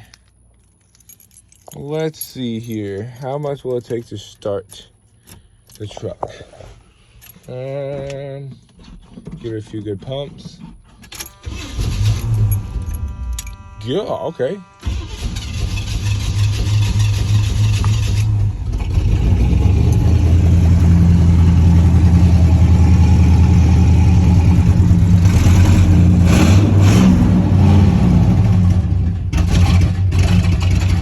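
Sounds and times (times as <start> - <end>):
truck engine idling: 14.8 - 26.4.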